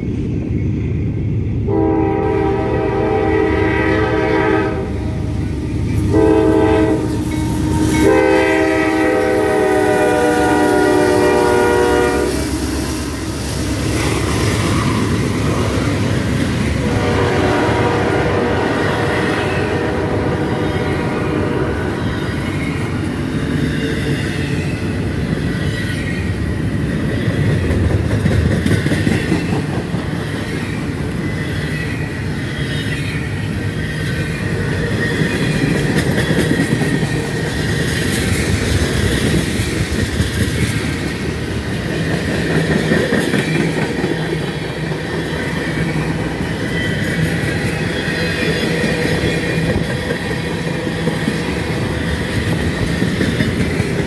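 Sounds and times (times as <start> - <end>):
steel wheels rumbling on rail: 0.0 - 54.0
wheels clicking over rail joints: 26.8 - 30.7, 34.0 - 54.0
high wheel squeal: 46.4 - 49.8.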